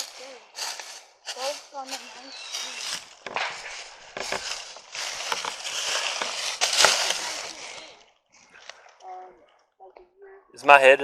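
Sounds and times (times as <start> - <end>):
footsteps crunching through dry leaves: 0.0 - 8.0.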